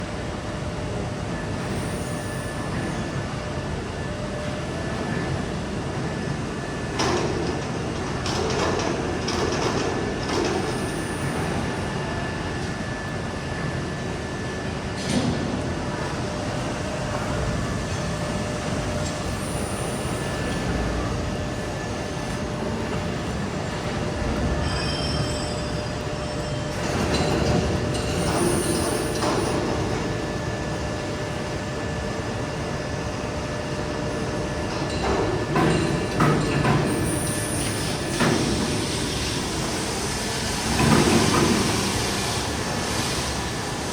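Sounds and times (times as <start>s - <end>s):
laser cutter hum and hiss: 10.6s - 43.9s.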